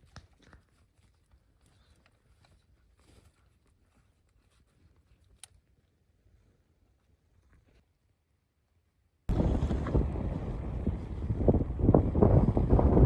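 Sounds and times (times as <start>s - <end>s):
faint small clicks: 5.0s - 5.7s.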